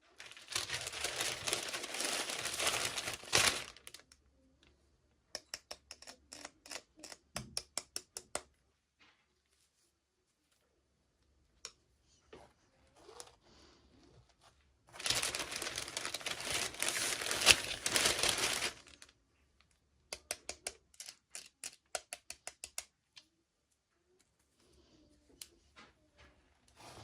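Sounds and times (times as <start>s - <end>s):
plastic packaging crinkling: 0.0s - 4.0s, 14.9s - 19.1s.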